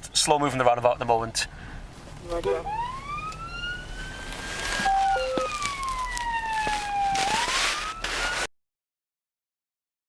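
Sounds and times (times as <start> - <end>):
police siren wailing: 2.3 - 8.5
short beeps: 4.8 - 5.6.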